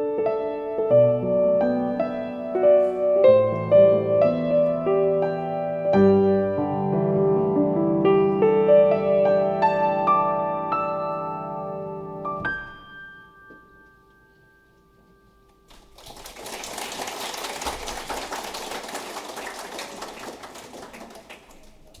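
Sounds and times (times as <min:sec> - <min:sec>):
piano chord ringing: 0:00.0 - 0:15.8
audience applause: 0:15.7 - 0:22.0.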